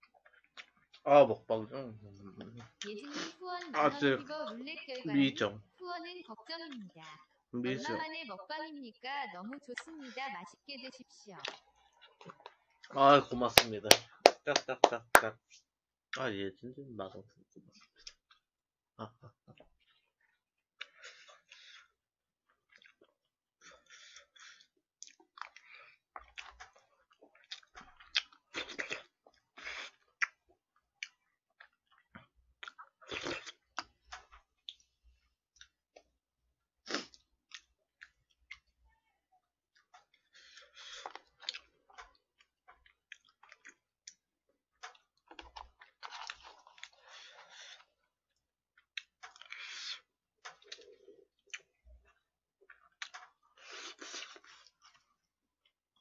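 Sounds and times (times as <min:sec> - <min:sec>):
chewing and crunching food: 0:00.0 - 0:01.1, 0:11.1 - 0:14.3, 0:17.4 - 0:18.6, 0:19.3 - 0:36.2, 0:36.8 - 0:56.0.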